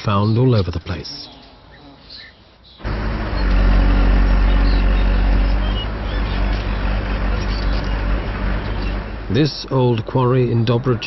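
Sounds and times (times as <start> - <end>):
diesel machinery drone: 2.8 - 11.0.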